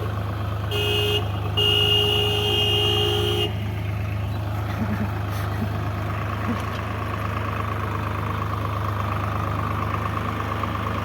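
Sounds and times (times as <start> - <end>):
engine humming: 0.0 - 11.0
vehicle horn: 0.6 - 3.7.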